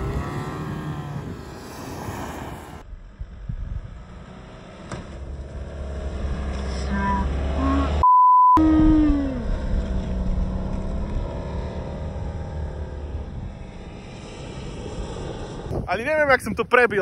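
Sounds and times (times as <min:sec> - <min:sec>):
car engine under load: 0:00.0 - 0:08.0, 0:09.2 - 0:15.9
short falling tone: 0:06.9 - 0:11.0
censor bleep: 0:07.6 - 0:09.1.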